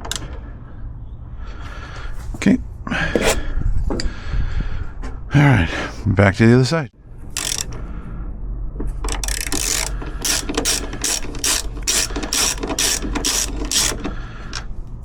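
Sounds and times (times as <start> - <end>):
ratchet pawl clicking: 7.3 - 7.8, 9.1 - 14.7.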